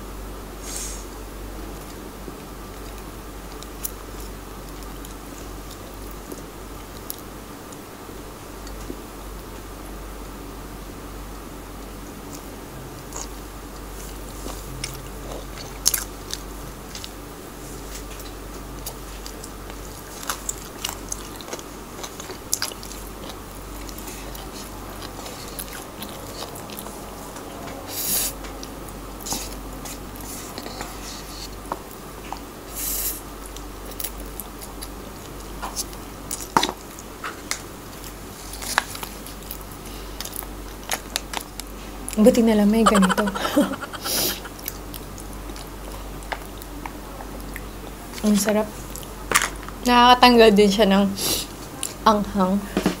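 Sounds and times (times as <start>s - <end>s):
chewing and biting food: 12.3s - 27.8s, 33.4s - 41.8s
slurping noodles: 42.8s - 44.8s.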